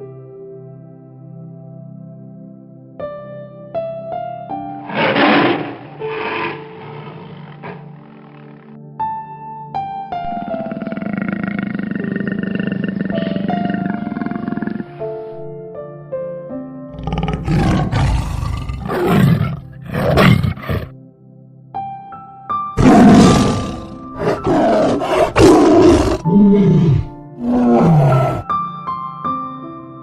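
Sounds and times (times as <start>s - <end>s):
soft background music: 0.0s - 30.0s
large animal roaring: 4.8s - 8.7s, 10.2s - 15.2s, 17.0s - 20.9s, 22.8s - 28.5s.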